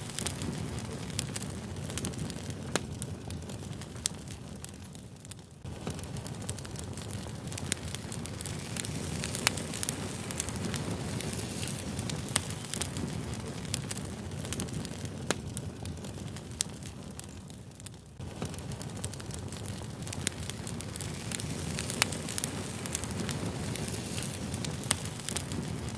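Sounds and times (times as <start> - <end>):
fire crackling: 0.0 - 25.9.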